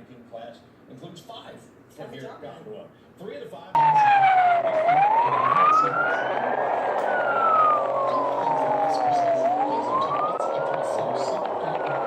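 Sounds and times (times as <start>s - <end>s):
emergency siren wailing: 3.8s - 12.0s.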